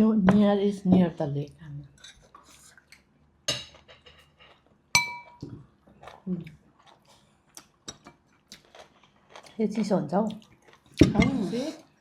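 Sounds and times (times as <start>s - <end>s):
cutlery clinking against dishes: 5.0s - 5.4s.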